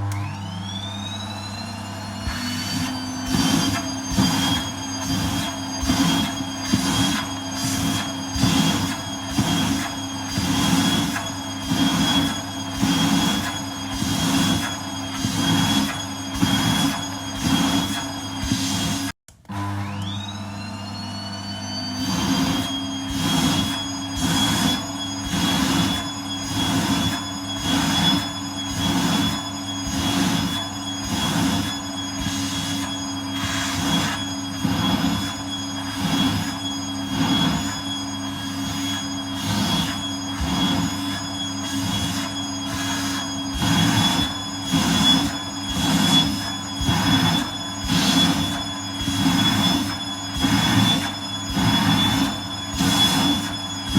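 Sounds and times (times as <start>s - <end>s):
vacuum cleaner motor whine: 0.0s - 53.9s
vacuum nozzle suction: 2.0s - 19.1s, 21.9s - 53.9s.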